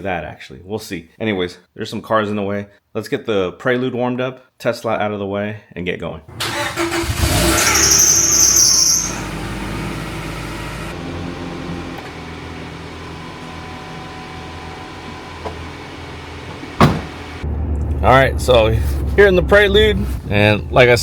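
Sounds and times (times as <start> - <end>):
car engine running: 9.0 - 20.8.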